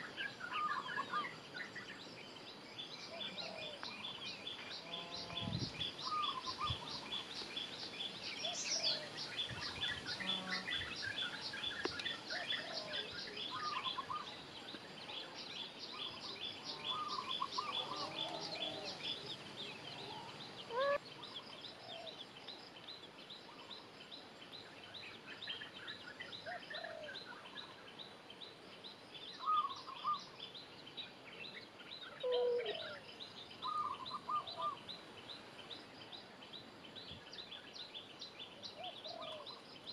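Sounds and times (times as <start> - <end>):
short lower bird calls: 20.0 - 21.1.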